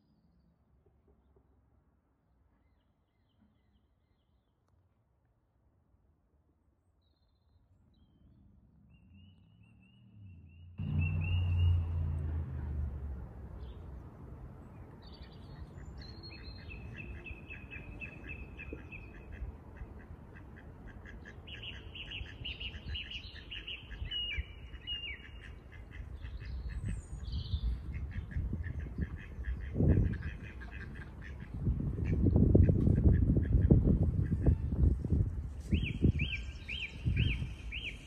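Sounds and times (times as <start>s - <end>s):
birds calling rapidly: 15.0s - 34.8s, 35.7s - 38.0s.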